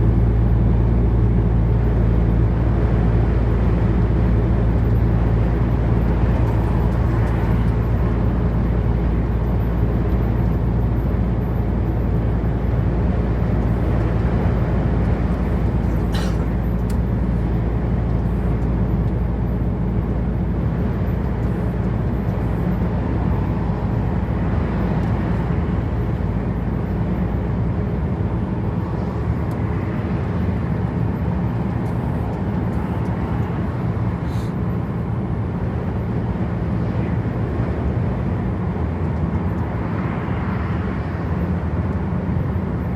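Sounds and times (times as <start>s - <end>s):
truck engine running: 0.0s - 29.4s
tyre and road noise: 0.0s - 42.9s.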